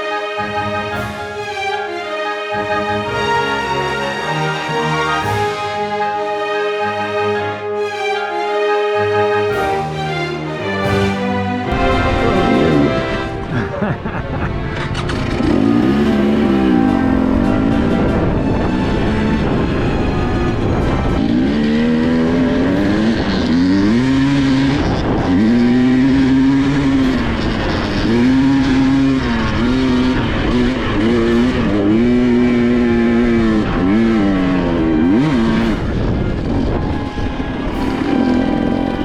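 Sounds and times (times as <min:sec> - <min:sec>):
dirt bike engine revving: 0:11.7 - 0:19.6, 0:21.2 - 0:39.0
wind and road rush: 0:11.7 - 0:39.0.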